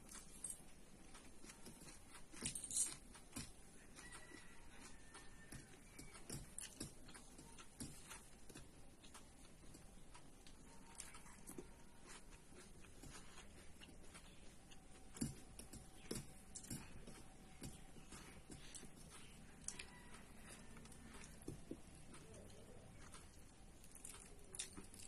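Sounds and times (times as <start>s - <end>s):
person eating: 0.0s - 25.0s.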